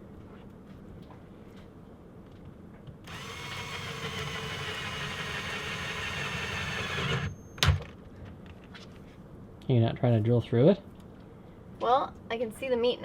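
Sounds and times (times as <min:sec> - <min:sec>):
power drill boring into coconut: 0:03.1 - 0:07.4.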